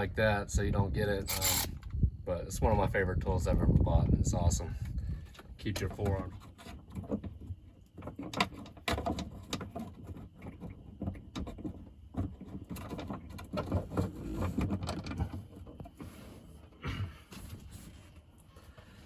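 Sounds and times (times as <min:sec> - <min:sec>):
clatter of tools and hardware: 0:01.2 - 0:02.0, 0:04.8 - 0:16.4.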